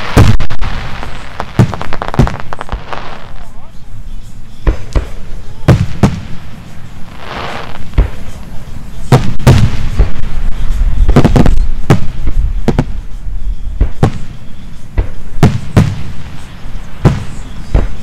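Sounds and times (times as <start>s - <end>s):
fireworks bursting with bangs: 0.0s - 18.0s.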